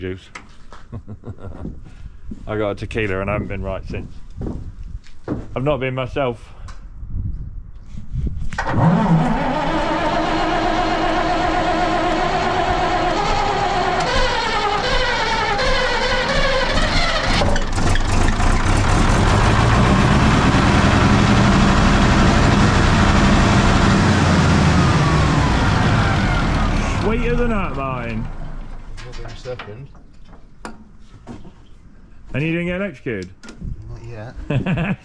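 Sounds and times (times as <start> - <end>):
large diesel turbo engine: 8.6 - 29.4.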